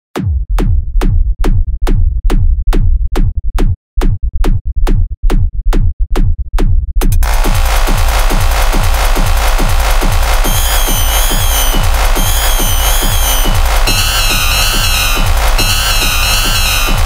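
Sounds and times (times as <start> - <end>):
drum machine kick drum: 0.2 - 17.0
hissing synth layer: 7.2 - 17.0.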